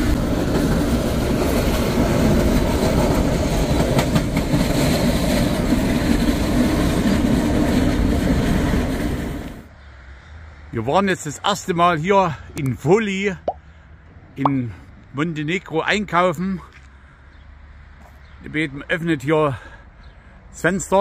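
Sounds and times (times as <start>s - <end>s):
train wheels rumbling on rails: 0.0s - 9.7s
clacks over rail joints: 0.5s - 5.5s.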